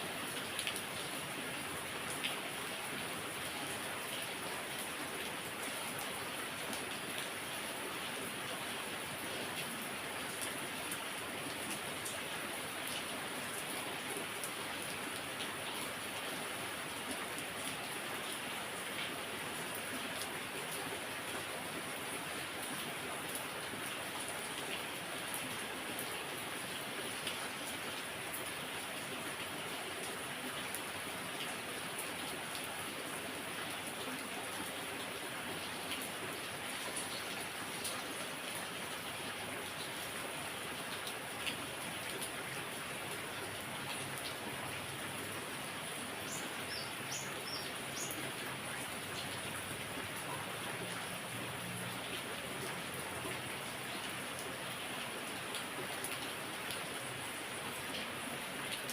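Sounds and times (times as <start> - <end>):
heavy rain: 0.0 - 58.9
bird chirping: 46.3 - 48.2.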